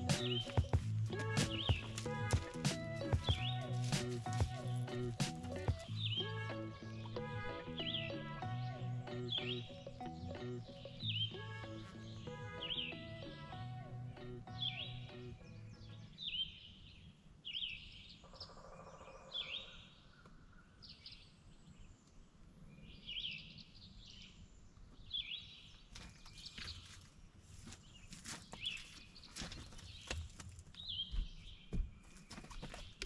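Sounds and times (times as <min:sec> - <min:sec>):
bird calling: 0:00.0 - 0:16.6
outdoor background noise: 0:00.0 - 0:33.0.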